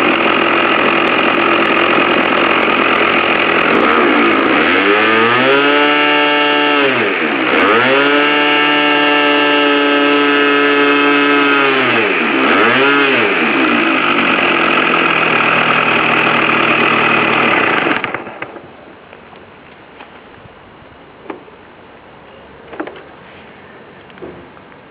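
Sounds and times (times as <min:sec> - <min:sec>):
model nitro engine revving: 0:00.0 - 0:18.4.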